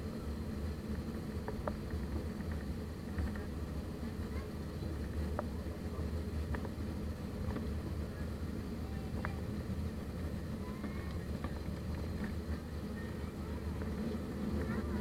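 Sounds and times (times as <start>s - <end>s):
low rumble in aircraft cabin: 0.0s - 15.0s
faint clicks: 10.7s - 13.1s.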